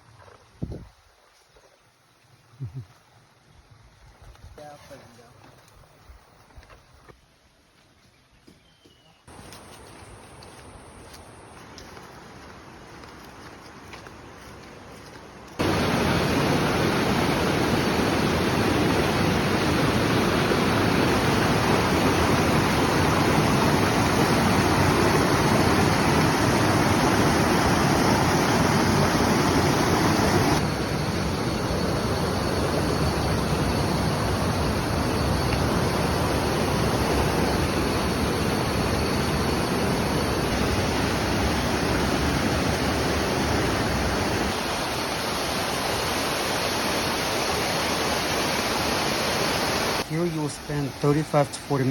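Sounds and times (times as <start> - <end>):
water rushing: 15.5 - 51.9.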